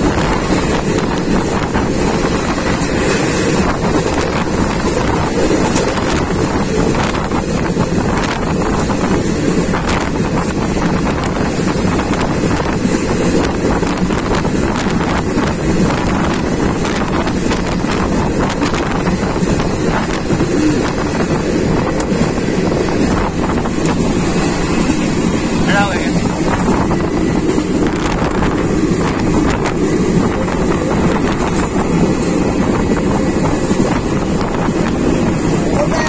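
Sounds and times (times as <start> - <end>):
train rumble: 0.0 - 36.0
wheels clicking on rails: 0.0 - 36.0
wind buffeting microphone: 0.0 - 36.0.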